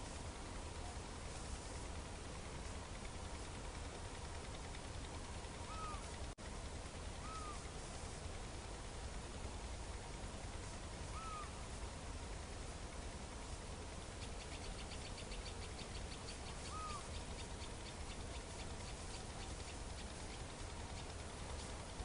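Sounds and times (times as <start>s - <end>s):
arched bird calls: 5.5s - 6.2s, 7.2s - 7.7s, 11.0s - 11.7s, 14.0s - 21.6s.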